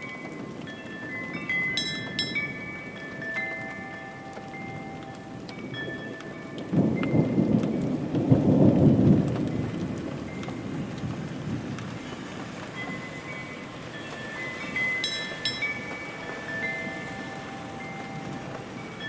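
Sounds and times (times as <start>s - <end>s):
faint chime-like ringing tones: 0.0s - 7.9s, 12.0s - 19.0s
steady rain falling: 0.0s - 19.0s
thunder rumble: 6.6s - 19.0s.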